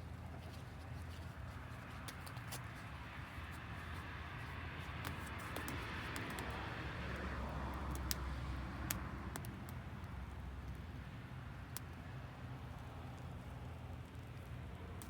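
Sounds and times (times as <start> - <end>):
campfire crackling: 4.9 - 11.0.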